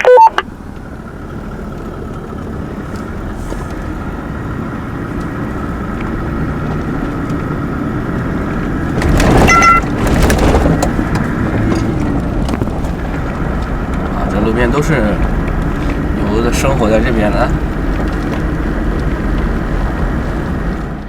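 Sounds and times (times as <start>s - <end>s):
short high tone: 0.0s - 0.4s, 9.5s - 9.8s
vehicle engine on dirt track: 0.2s - 21.0s.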